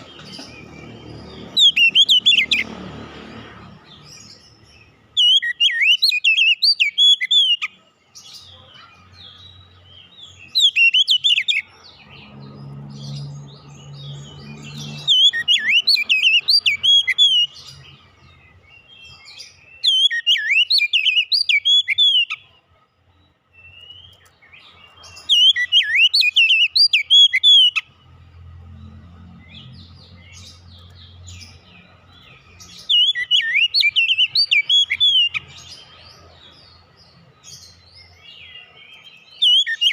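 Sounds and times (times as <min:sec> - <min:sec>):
bird singing whistled phrases: 0:01.5 - 0:02.6, 0:05.2 - 0:07.7, 0:10.4 - 0:11.6, 0:14.9 - 0:17.6, 0:19.5 - 0:22.5, 0:25.2 - 0:27.8, 0:32.7 - 0:35.5, 0:39.3 - 0:39.9.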